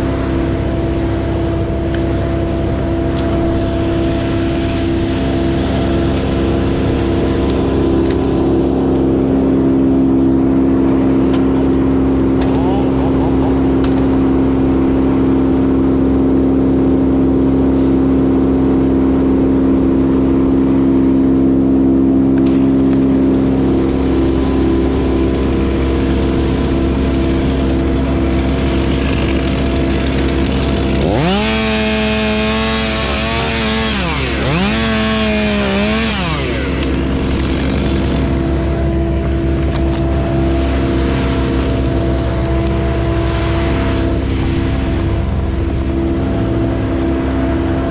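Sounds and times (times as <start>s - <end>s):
engine hum: 0.0s - 47.9s
chainsaw revving: 3.1s - 14.4s, 22.4s - 47.4s.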